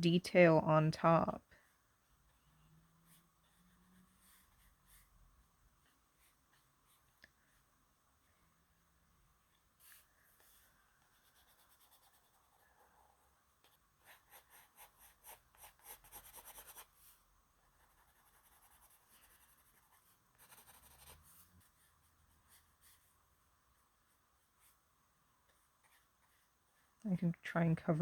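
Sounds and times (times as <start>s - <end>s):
pencil scratching on paper: 3.1s - 5.1s, 9.8s - 23.2s.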